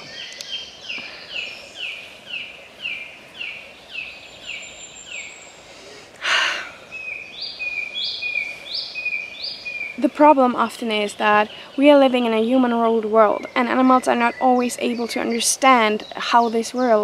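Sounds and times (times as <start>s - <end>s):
faint outdoor background: 0.0s - 17.0s.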